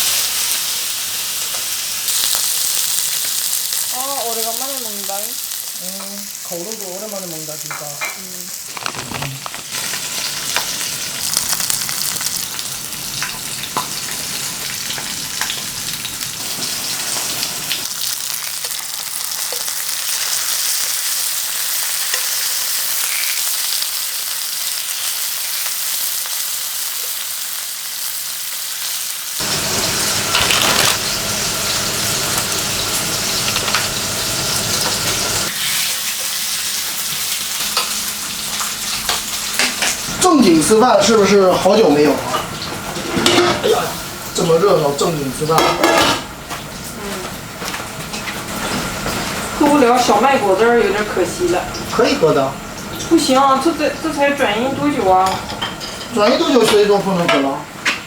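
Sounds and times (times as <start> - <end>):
meat sizzling on a grill: 0.0 - 57.9
fat popping and crackling: 7.8 - 10.8, 30.3 - 31.2.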